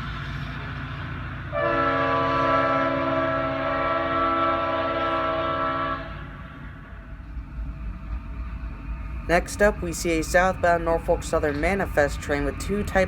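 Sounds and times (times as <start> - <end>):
train rumble: 0.0 - 13.0
locomotive air horn chord: 1.5 - 6.4.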